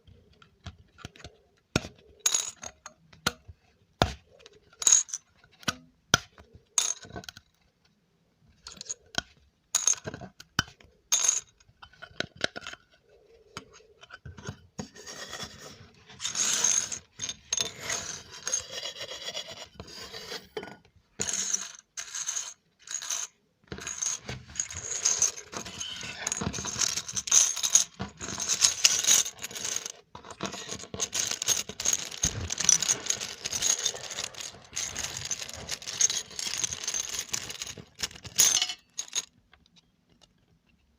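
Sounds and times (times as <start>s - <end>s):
scratching and rubbing: 21.3s - 39.3s.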